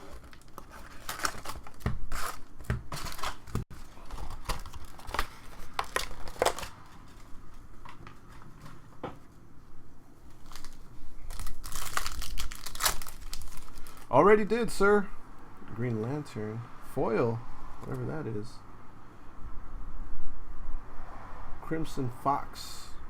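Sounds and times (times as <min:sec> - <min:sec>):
card packs tearing open: 0:00.0 - 0:07.2, 0:10.4 - 0:14.1
wrappers crinkling: 0:00.0 - 0:07.3, 0:10.3 - 0:14.1.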